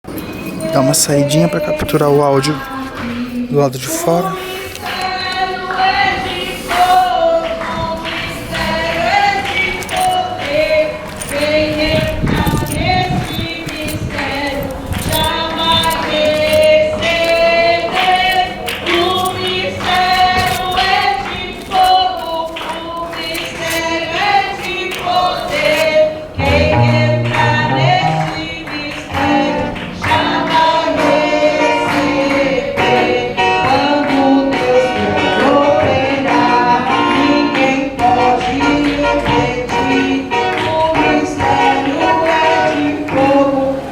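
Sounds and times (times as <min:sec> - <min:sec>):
group singing gospel: 0:01.4 - 0:43.9
drums beating: 0:26.4 - 0:28.5
band playing: 0:26.4 - 0:28.6.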